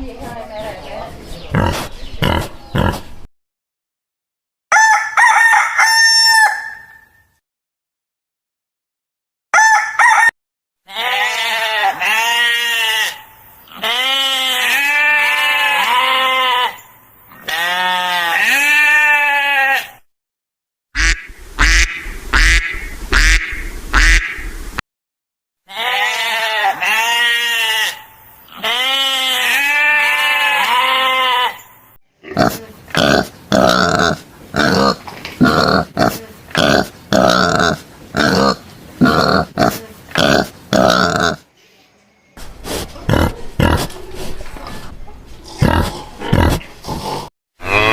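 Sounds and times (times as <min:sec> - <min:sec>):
wavering bleats: 0:10.9 - 0:20.0, 0:25.7 - 0:31.6, 0:47.6 - 0:47.9.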